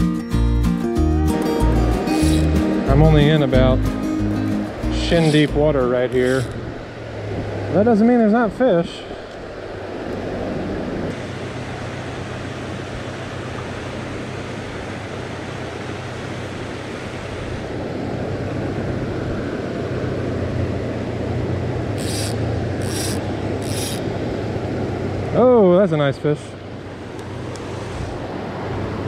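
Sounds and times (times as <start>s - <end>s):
river water rushing: 0.9s - 29.0s
short high hissing: 1.9s - 2.7s.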